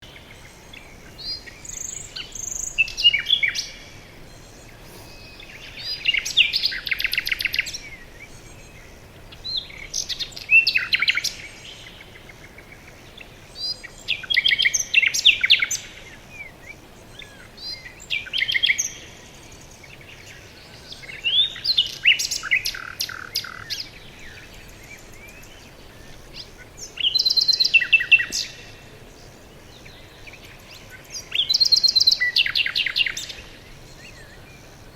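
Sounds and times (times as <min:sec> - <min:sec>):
faint steady hiss: 0:00.0 - 0:34.9
songbird trilling: 0:00.0 - 0:34.9.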